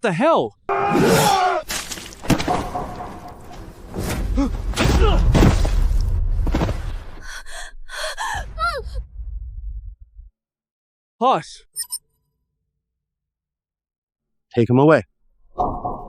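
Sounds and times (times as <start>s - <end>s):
men grunting and crying out: 0.7s - 2.1s, 4.2s - 5.4s
thuds and impacts: 1.6s - 7.2s.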